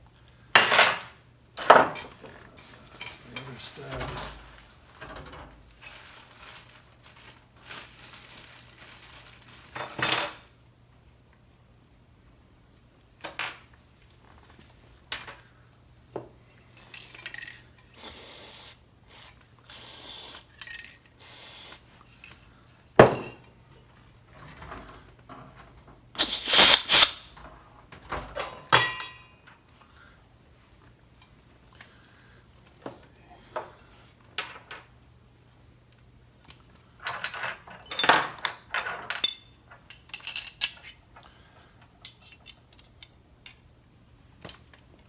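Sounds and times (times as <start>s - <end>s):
metal parts clinking on workbench: 26.2s - 27.2s
aerosol spray hissing: 26.2s - 27.3s.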